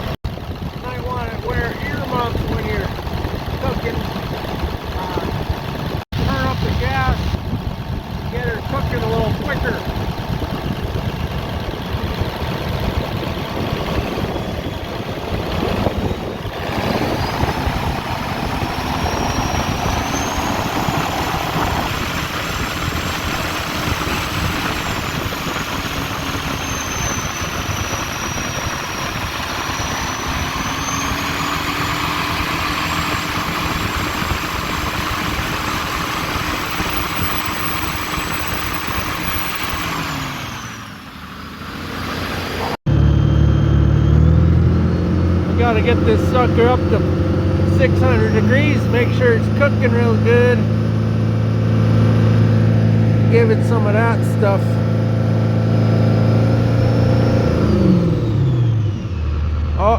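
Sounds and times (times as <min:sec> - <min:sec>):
diesel engine revving: 0:00.0 - 0:59.9
turbo whistle: 0:13.9 - 0:33.7, 0:36.2 - 0:40.4.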